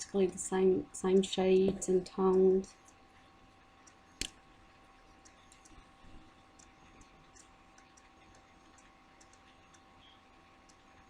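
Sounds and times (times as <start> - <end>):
faint steady hum: 0.0 - 11.0
faint small clicks: 5.2 - 5.8, 6.5 - 11.0.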